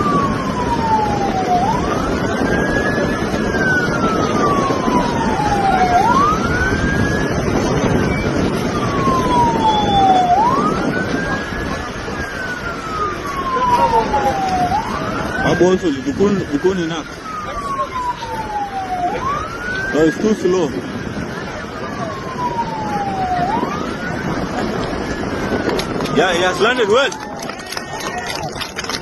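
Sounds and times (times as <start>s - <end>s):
loud steady rushing noise: 0.0s - 29.0s
siren wailing: 0.0s - 29.0s.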